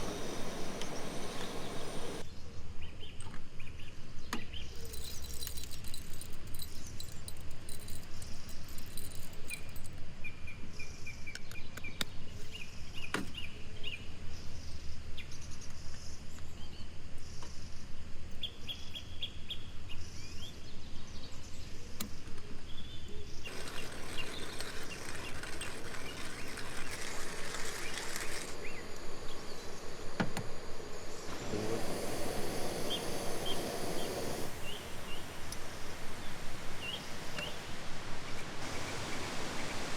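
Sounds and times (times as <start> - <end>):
small birds chirping: 0.0 - 2.3, 18.4 - 39.9
loud rustling: 23.5 - 28.6.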